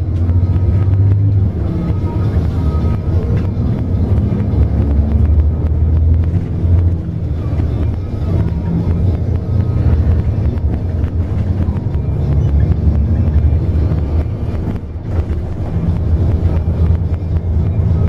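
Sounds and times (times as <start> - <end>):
bus engine and road rumble: 0.0 - 18.0.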